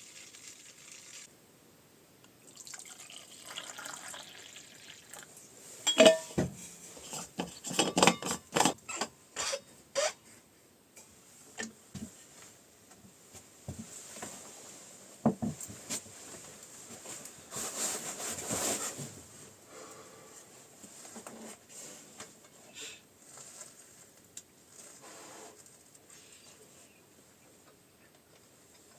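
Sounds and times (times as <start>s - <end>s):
objects knocking and clinking: 5.9s - 6.5s, 7.4s - 8.8s
rubbing or scraping: 15.8s - 19.4s, 24.8s - 25.7s.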